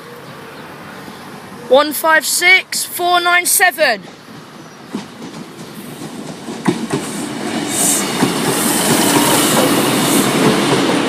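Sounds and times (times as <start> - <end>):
train wheels clattering over rail joints: 4.0 - 11.0.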